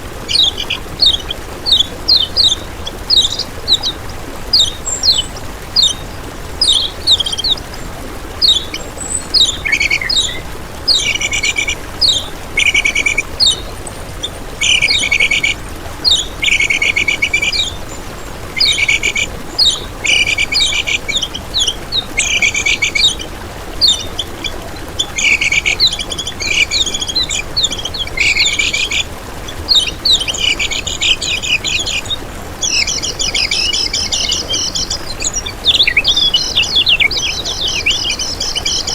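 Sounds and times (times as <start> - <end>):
songbird calling: 0.0 - 38.9.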